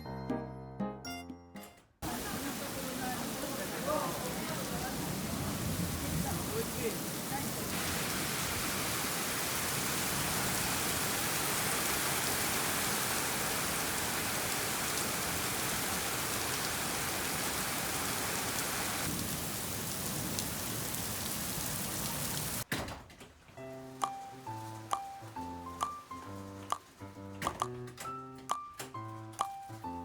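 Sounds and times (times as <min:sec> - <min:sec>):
heavy rain falling: 0:02.0 - 0:22.7.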